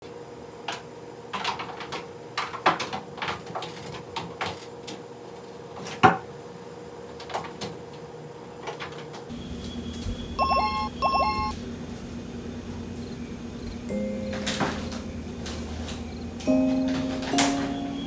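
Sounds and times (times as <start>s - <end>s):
steady low hum: 9.3s - 18.0s.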